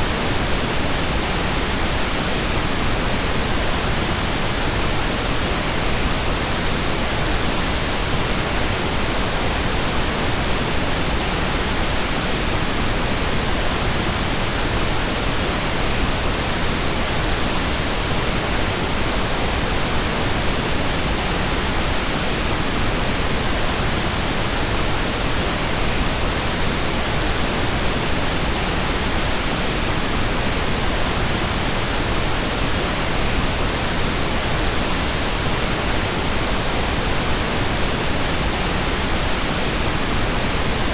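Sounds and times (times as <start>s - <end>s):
steady pink noise hiss: 0.0s - 40.9s.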